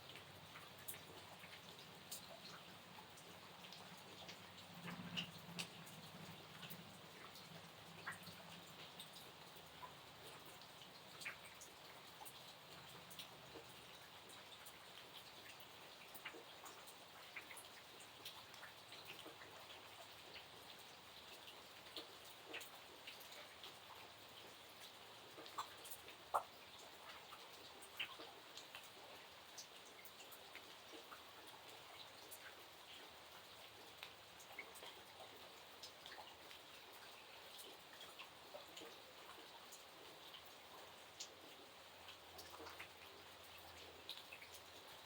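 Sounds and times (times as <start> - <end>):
raindrops tapping: 0.0 - 15.3
light rain hiss: 0.0 - 45.0.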